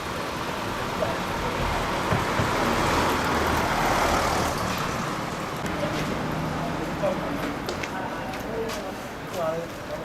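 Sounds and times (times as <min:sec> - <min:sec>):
motor vehicle rushing: 0:00.0 - 0:07.7.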